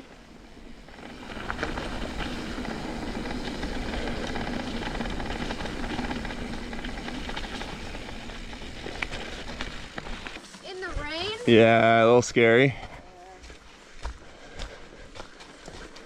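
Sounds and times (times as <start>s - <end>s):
tyre and wind noise: 0.0s - 11.8s
bike clicks and rattles: 0.3s - 10.6s.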